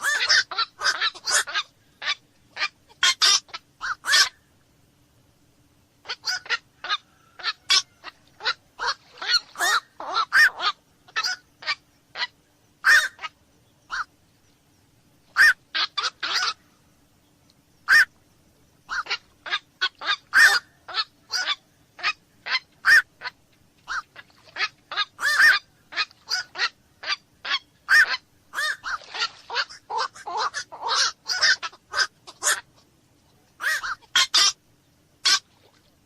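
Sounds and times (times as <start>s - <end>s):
heron calling: 0.0s - 4.4s, 6.1s - 14.1s, 15.3s - 16.6s, 17.9s - 18.1s, 18.9s - 32.8s, 33.6s - 34.6s.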